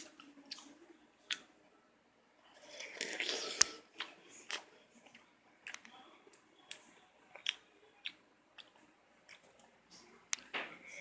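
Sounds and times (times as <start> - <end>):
person chewing with wet clicks: 0.0 - 1.5, 2.6 - 10.5.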